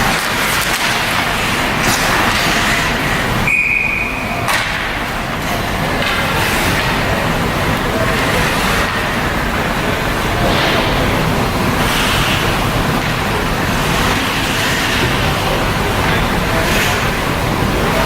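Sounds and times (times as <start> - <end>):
referee's whistle blast: 3.4 - 4.3.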